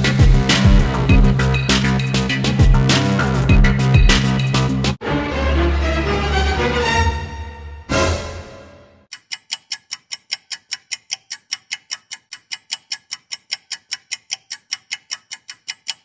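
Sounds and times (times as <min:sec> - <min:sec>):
clock ticking: 0:00.0 - 0:04.4, 0:09.0 - 0:16.0
music: 0:00.0 - 0:09.0.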